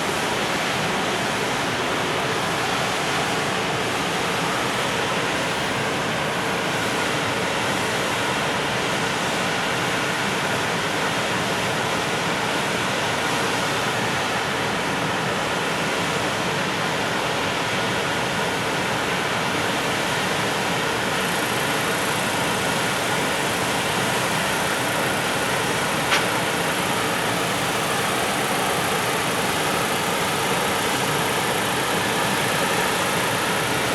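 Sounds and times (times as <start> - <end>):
train wheels rolling on rails: 21.1 - 33.9.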